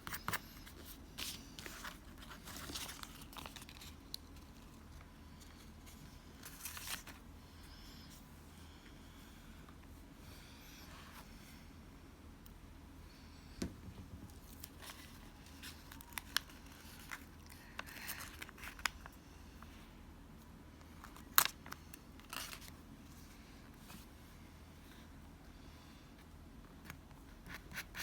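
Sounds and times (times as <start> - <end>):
paper rustling and scraping: 0.0 - 4.8, 5.4 - 7.2.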